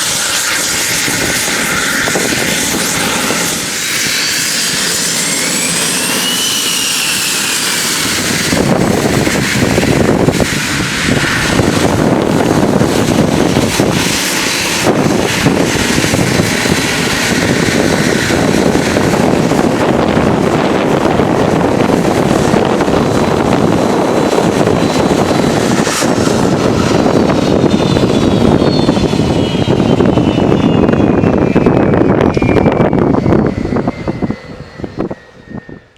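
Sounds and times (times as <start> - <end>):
descending whine: 0.0 - 35.9
jet engines whining: 0.0 - 35.9
loud rushing rumble: 0.0 - 35.9.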